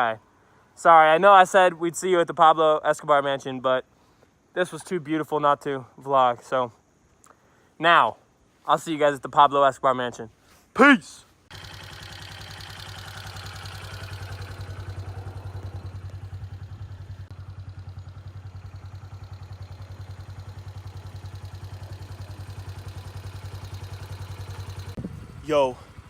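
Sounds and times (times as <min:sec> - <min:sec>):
motorcycle engine running: 0:11.5 - 0:26.0.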